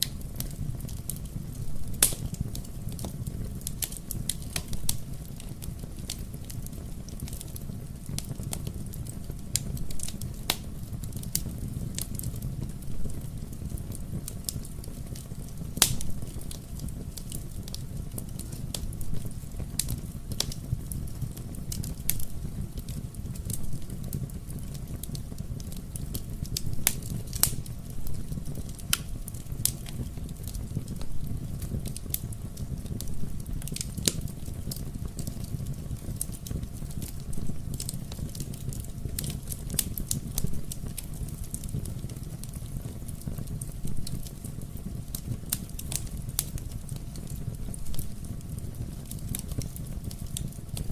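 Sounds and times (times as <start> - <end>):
fire crackling and popping: 0.0 - 50.9.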